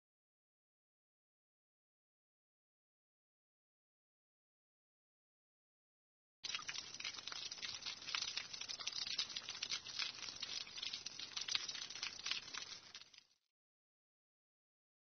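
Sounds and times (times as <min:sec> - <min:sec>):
dense crisp crackling: 0:06.4 - 0:13.4.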